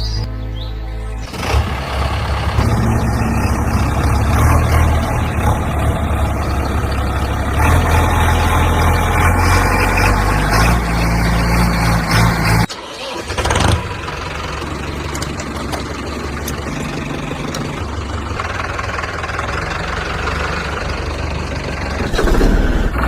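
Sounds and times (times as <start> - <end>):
music: 0.0 - 1.3
heavy vehicle engine running: 0.0 - 23.0.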